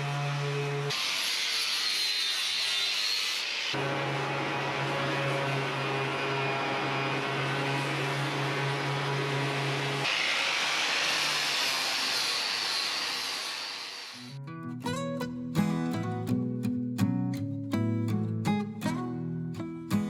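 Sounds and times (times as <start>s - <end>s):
electric sander running: 3.5s - 14.3s
guitar music: 14.3s - 20.0s.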